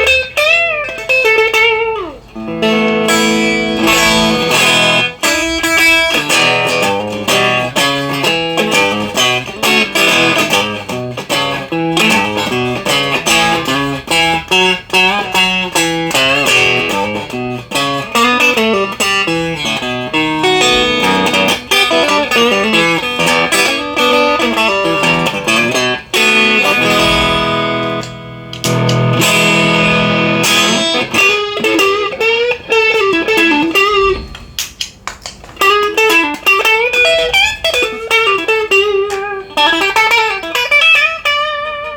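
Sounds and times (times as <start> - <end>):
electric guitar playing: 0.0 - 41.9.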